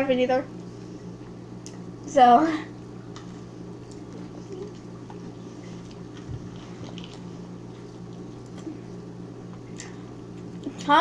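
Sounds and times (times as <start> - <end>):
low electrical hum: 0.0 - 11.0
chewing: 3.8 - 10.8.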